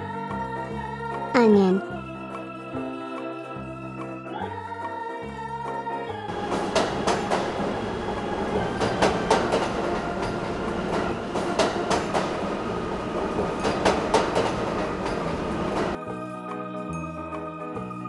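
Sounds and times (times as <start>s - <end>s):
train rumbling on rails: 6.3s - 16.0s
wheels clicking over rail joints: 8.5s - 12.5s, 13.1s - 16.0s.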